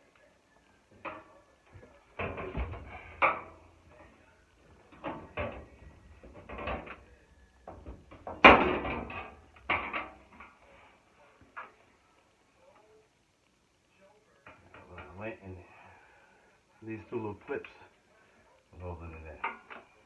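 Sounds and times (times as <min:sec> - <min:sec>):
sheet metal knocks and scraping: 0:02.2 - 0:03.6, 0:04.9 - 0:10.5.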